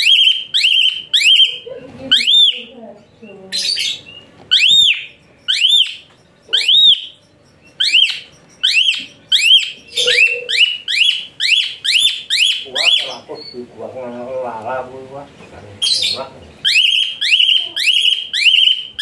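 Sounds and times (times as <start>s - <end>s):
starling shrill whistled notes: 4.5s - 13.6s.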